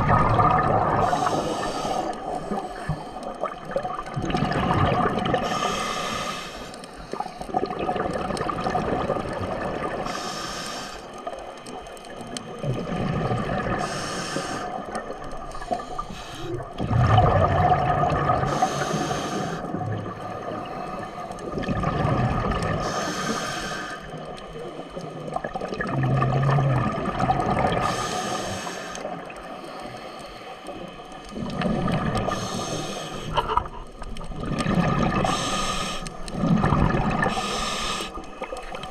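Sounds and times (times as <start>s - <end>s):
diver exhaling bubbles: 0.0s - 6.2s, 7.2s - 10.1s, 12.6s - 23.0s, 25.4s - 28.3s, 31.3s - 38.9s
underwater wash: 0.0s - 38.9s.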